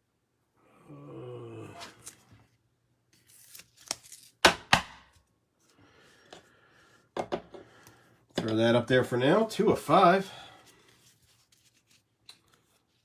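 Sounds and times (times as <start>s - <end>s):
cards clicking and rustling: 3.2s - 5.2s.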